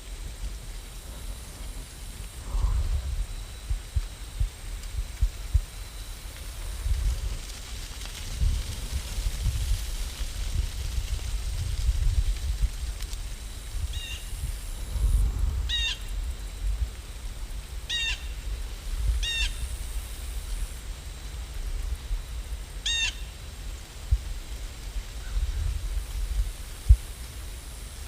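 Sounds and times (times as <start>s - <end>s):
steady low rumble: 0.0s - 22.8s
bird calling: 17.9s - 18.4s, 22.8s - 23.3s.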